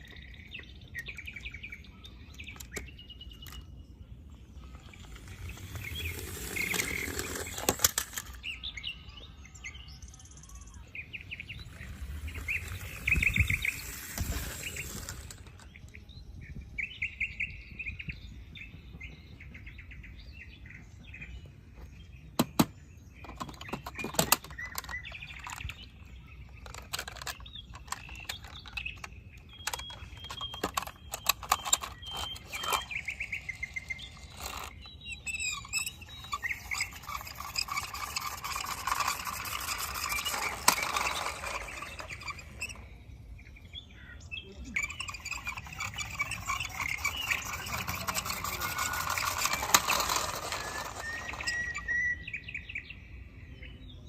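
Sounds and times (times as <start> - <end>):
birds chirping and trilling: 0.0 - 54.0
sharp clicks and knocks: 22.4 - 25.9, 26.5 - 34.9.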